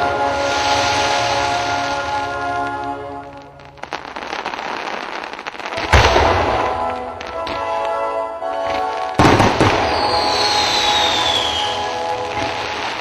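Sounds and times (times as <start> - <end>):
fireworks crackling: 0.0 - 13.0
music: 0.0 - 13.0.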